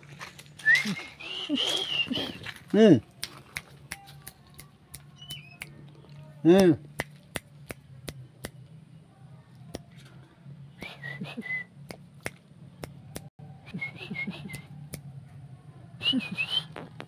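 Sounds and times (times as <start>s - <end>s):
person whistling: 0.6s - 2.4s, 10.8s - 11.8s, 13.7s - 14.7s, 16.0s - 16.8s.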